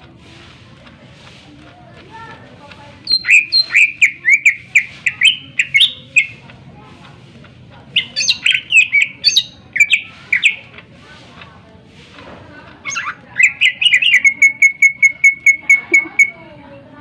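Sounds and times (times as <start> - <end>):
bird singing whistled notes: 3.0 - 6.4, 8.0 - 10.6, 12.8 - 16.4.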